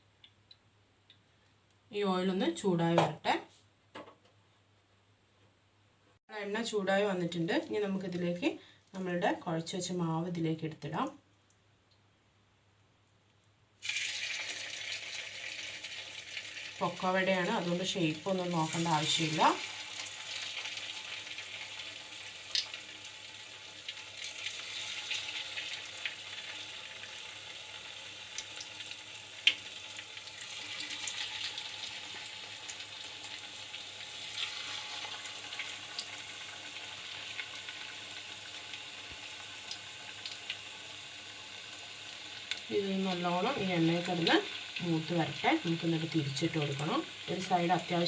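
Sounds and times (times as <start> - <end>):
batter frying in hot oil: 13.7 - 48.0.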